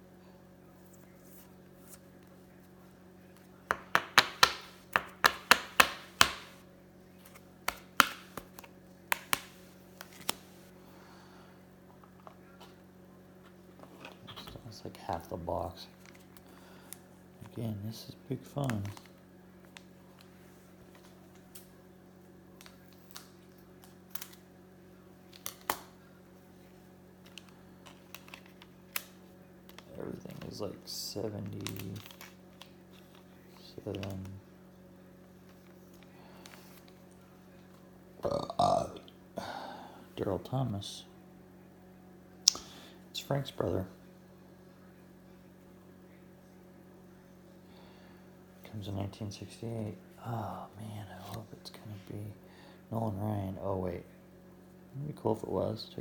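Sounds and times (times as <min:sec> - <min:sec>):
steady low hum: 0:00.0 - 0:56.0
cards clicking and tapping: 0:03.4 - 0:06.6, 0:07.2 - 0:10.5, 0:27.2 - 0:30.5
taps on a tabletop: 0:03.7 - 0:06.6.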